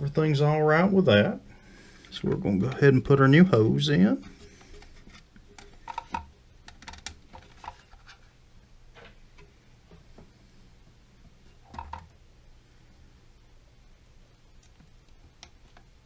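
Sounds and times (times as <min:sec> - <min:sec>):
hands handling plastic fittings: 0:04.4 - 0:08.2.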